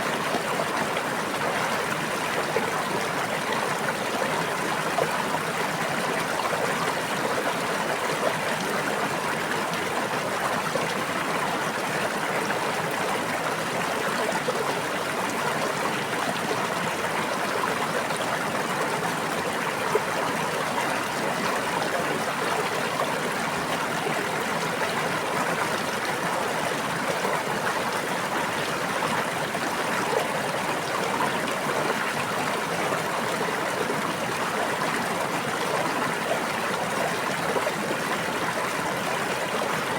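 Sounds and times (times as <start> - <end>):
stream babbling: 0.1 - 39.9.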